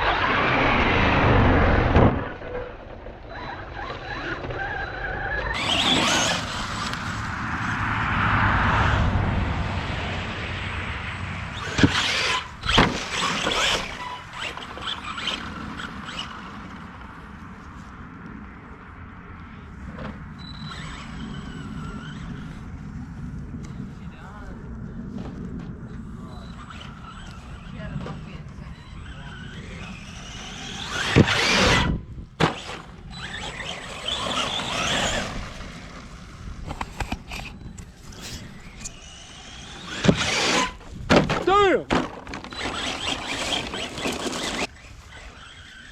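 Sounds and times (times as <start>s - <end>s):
rc truck squeaks and motor whine: 0.0s - 7.2s, 11.5s - 16.8s, 20.2s - 22.8s, 26.1s - 36.0s, 36.7s - 41.0s, 42.2s - 45.9s
sharp knocks of rc truck: 11.6s - 15.4s, 30.5s - 35.3s, 39.9s - 44.7s.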